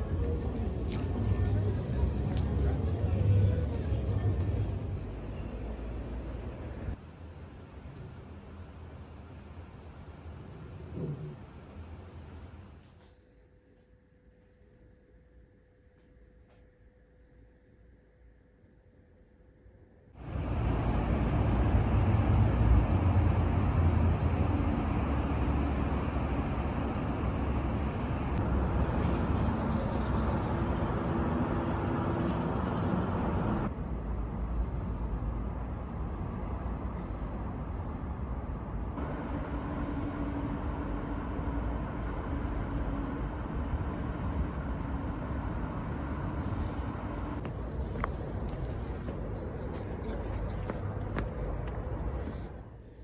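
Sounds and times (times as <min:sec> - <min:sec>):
moving vehicle rumble: 0:00.0 - 0:12.8, 0:20.2 - 0:53.0.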